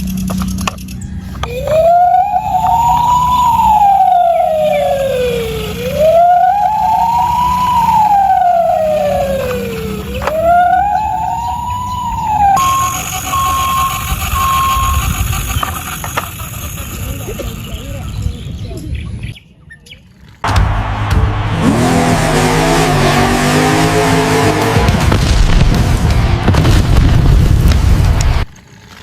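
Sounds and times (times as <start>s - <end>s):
toy ambulance siren wailing: 1.2s - 18.2s
short repeated beeps: 12.6s - 15.1s.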